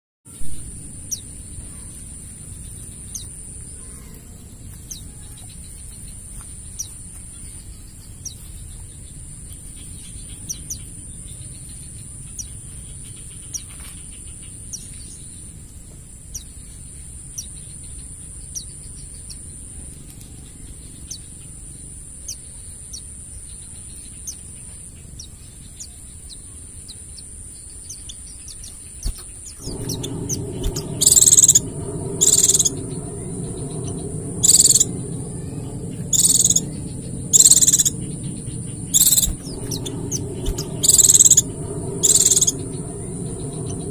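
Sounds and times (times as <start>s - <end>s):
low background hum: 0.3s - 22.2s, 29.0s - 43.9s
bird trilling and whistling: 29.6s - 43.9s.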